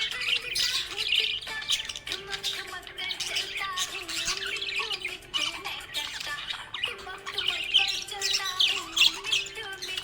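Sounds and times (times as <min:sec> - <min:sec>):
budgerigar chattering: 0:00.0 - 0:10.0.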